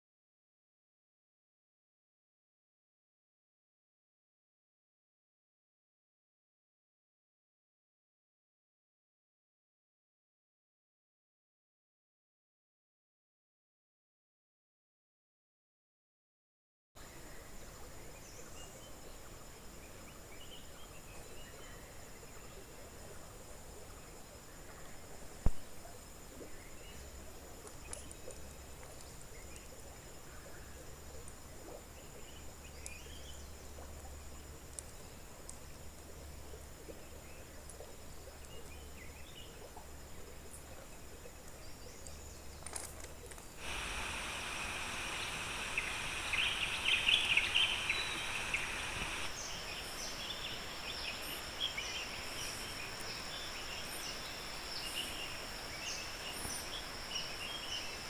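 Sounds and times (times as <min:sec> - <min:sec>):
bird or insect chirps: 0:24.0 - 0:58.0
high insect drone: 0:42.2 - 0:58.0.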